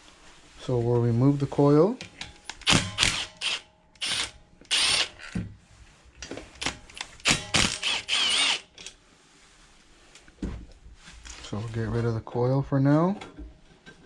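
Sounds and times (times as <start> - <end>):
power driver bursts: 7.2 - 8.6.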